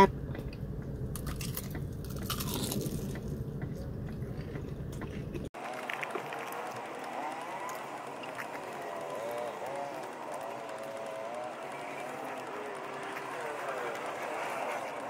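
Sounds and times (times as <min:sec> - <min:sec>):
crunching fried chicken: 0:01.1 - 0:03.4.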